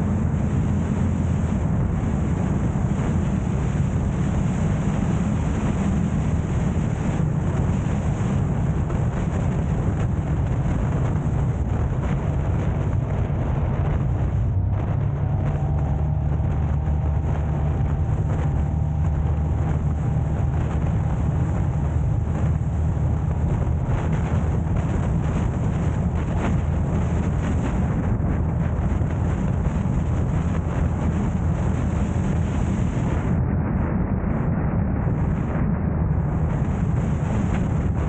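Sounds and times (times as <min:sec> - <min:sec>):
car engine and road noise: 0:00.0 - 0:38.0
wind on microphone: 0:00.0 - 0:38.0.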